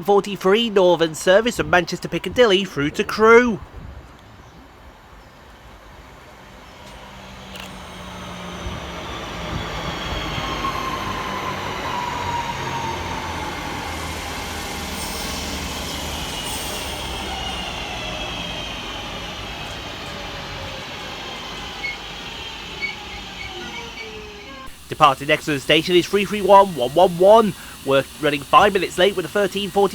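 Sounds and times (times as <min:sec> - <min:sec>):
electric train traction motor whine: 0:06.3 - 0:29.9.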